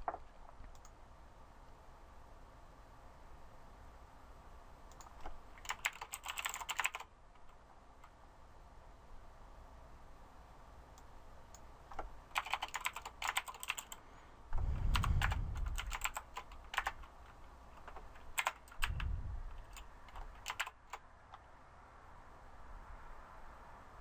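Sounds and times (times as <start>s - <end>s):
computer keyboard typing: 4.9s - 8.2s, 11.0s - 14.0s, 14.9s - 21.0s
short low rumbles: 14.5s - 16.0s, 18.8s - 19.7s.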